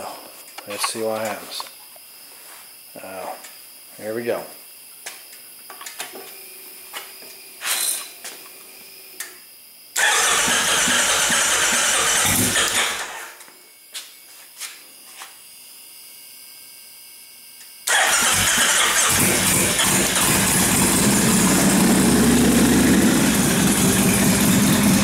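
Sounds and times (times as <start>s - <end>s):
motorcycle engine starting and running: 10.0s - 13.3s, 17.9s - 25.0s.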